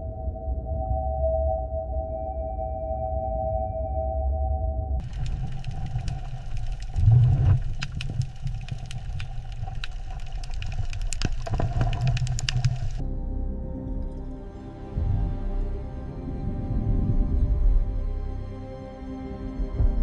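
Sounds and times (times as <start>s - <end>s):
mechanical engine-like rumble: 5.0s - 18.6s.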